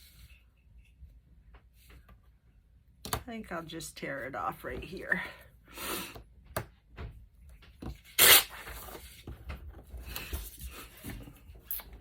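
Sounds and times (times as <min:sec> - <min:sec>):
paper tearing: 0:08.1 - 0:09.0.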